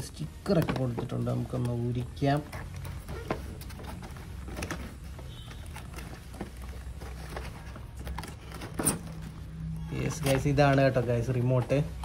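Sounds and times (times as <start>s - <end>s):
packaging crackling and tapping: 0.4s - 9.3s.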